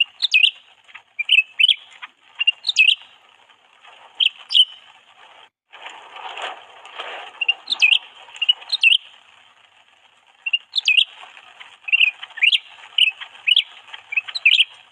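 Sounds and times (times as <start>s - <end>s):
songbird chirping: 0.0s - 3.2s, 4.2s - 5.0s, 7.4s - 9.2s, 10.4s - 14.9s
rustling: 0.0s - 14.9s.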